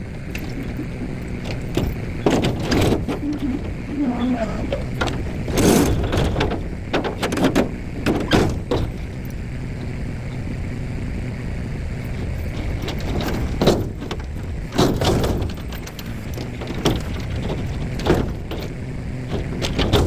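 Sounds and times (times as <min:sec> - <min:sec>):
low machine hum: 0:00.0 - 0:20.0
sharp knocks: 0:00.3 - 0:09.2.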